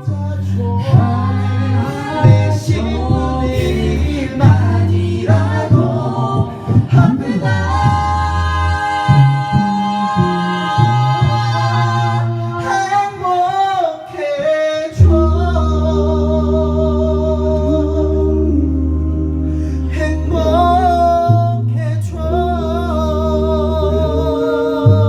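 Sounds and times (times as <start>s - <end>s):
deep bass voice holding low note: 0.0s - 12.7s, 15.0s - 25.0s
vocal group singing in harmony: 0.0s - 25.0s.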